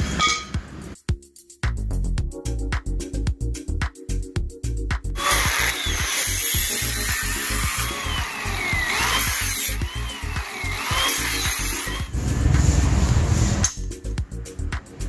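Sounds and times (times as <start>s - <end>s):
music with steady beat: 0.5s - 15.0s
power tool whining: 5.2s - 12.1s.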